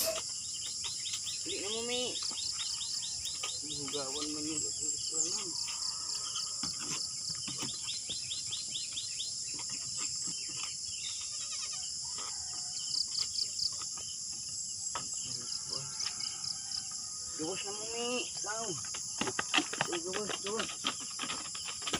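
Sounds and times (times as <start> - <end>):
high-pitched insect drone: 0.0 - 0.8
birds chirping: 0.0 - 21.9.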